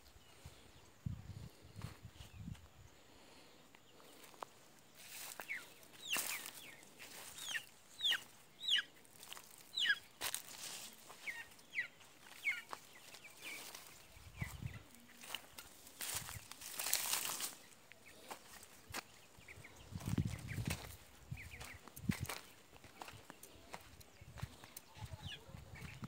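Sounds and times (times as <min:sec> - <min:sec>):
birds chirping downward: 0:03.4 - 0:26.0
rustling and crunching: 0:06.2 - 0:07.4, 0:09.1 - 0:11.2, 0:15.2 - 0:18.7.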